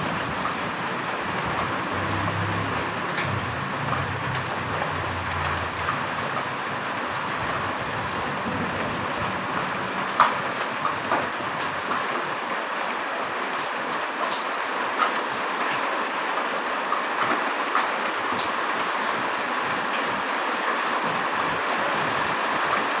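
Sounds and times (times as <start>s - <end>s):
sharp drips and taps: 0.0s - 12.3s, 13.6s - 15.9s
heavy rain: 0.0s - 23.0s
low rumble: 1.4s - 6.6s.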